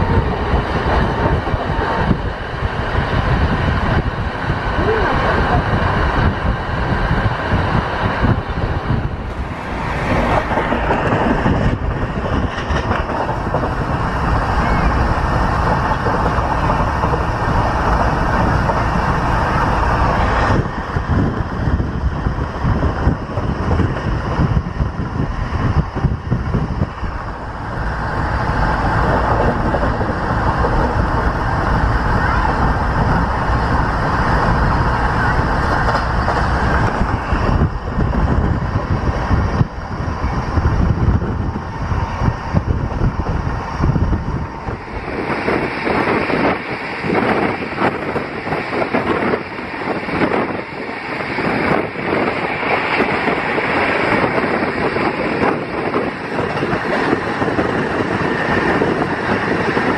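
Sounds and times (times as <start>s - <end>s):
train coach rumbling and rattling: 0.0s - 59.9s.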